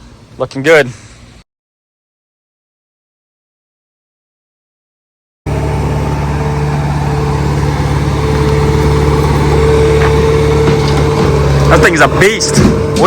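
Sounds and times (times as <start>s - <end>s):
heavy equipment engine running: 5.5s - 13.0s.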